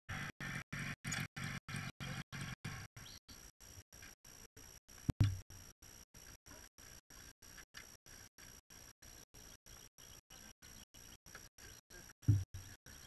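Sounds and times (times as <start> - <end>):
motorcycle engine running: 12.3 - 12.7.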